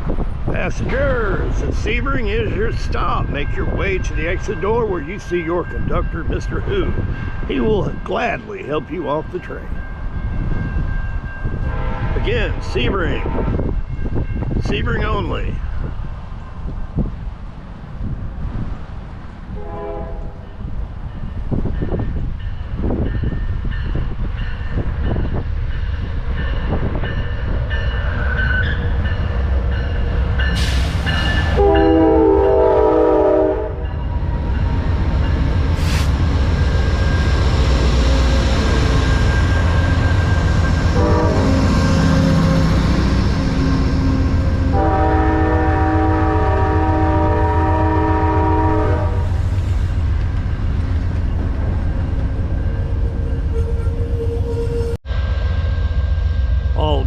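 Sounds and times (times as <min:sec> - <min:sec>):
diesel locomotive rumble: 0:00.0 - 0:57.0
train horn blasts: 0:11.6 - 0:13.7, 0:19.5 - 0:20.6, 0:30.6 - 0:34.0, 0:38.0 - 0:49.4.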